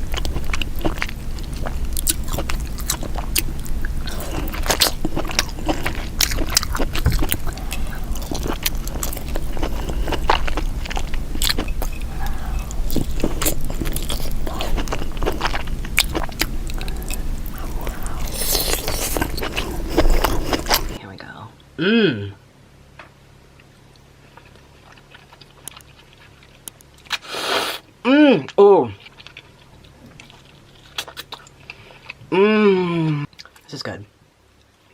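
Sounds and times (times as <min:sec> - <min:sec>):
wet biting and chewing: 0:00.0 - 0:21.0, 0:24.0 - 0:27.8, 0:29.0 - 0:32.3.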